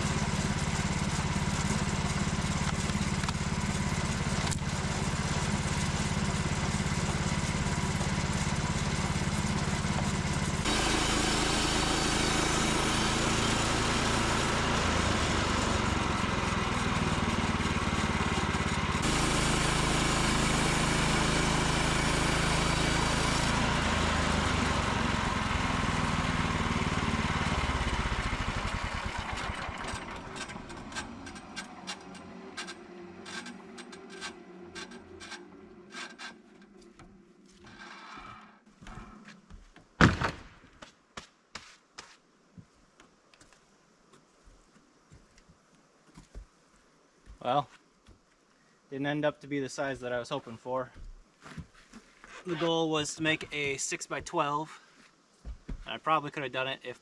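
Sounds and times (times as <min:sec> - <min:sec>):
small engine sawing log: 0:00.0 - 0:39.5, 0:50.9 - 0:57.0.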